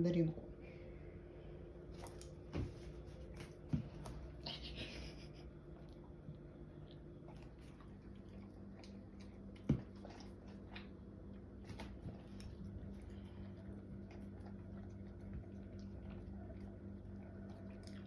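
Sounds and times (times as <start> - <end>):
puppy chewing wet clicks: 1.9 - 2.6, 5.7 - 18.0.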